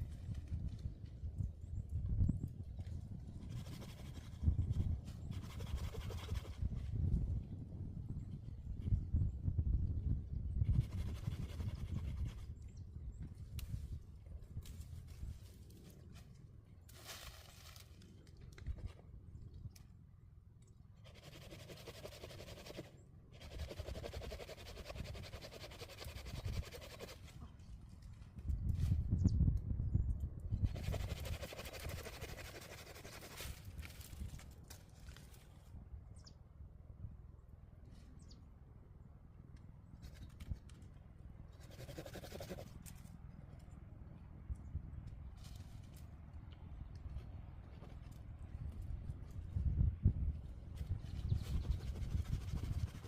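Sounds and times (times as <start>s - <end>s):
hand saw cutting: 21.1s - 27.2s, 30.7s - 33.4s.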